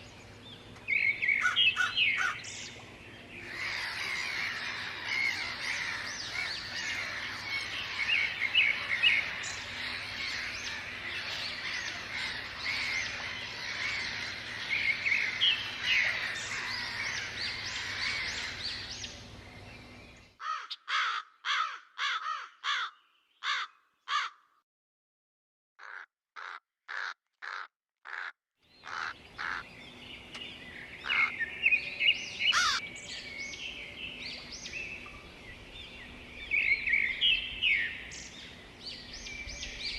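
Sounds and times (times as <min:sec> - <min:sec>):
chorus of birds chirping: 0:00.0 - 0:24.3, 0:28.7 - 0:39.9
loud caw-like calls: 0:01.4 - 0:02.4, 0:03.4 - 0:19.1, 0:20.4 - 0:24.5, 0:25.8 - 0:29.7, 0:31.0 - 0:31.4, 0:32.5 - 0:32.8.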